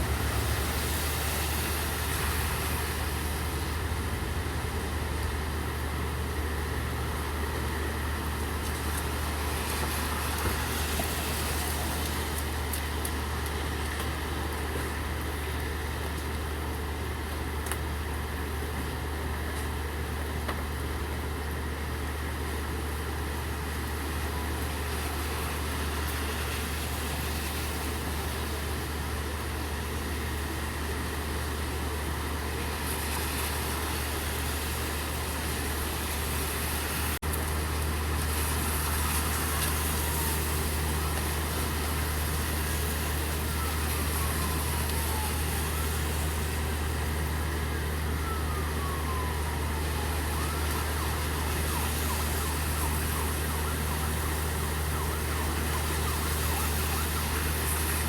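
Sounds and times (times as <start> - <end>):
distant siren wailing: 0.0 - 19.4, 22.1 - 58.0
vehicle engine idling: 0.0 - 24.6
steady rain: 0.0 - 58.0.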